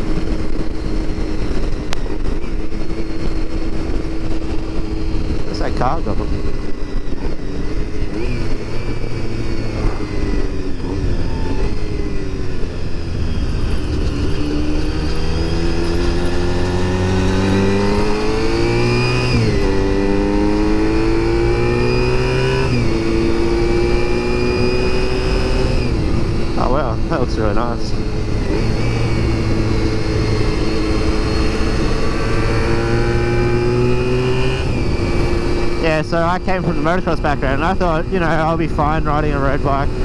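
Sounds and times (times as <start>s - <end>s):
motorcycle engine revving: 0.0s - 40.0s
wind rushing: 6.3s - 15.8s.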